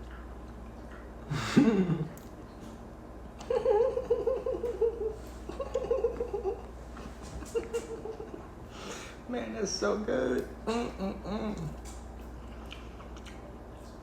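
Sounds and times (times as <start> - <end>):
man laughing: 1.3 - 2.2, 3.5 - 6.7, 7.4 - 8.5.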